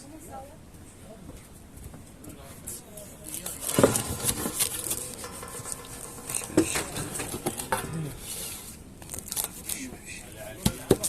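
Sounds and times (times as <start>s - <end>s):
utensils and dishes clattering: 3.3s - 9.8s.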